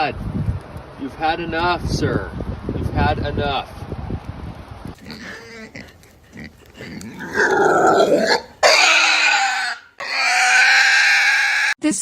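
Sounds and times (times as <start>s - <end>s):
drawn-out pitched animal call: 5.0s - 11.8s
loud rough animal call: 5.0s - 11.8s.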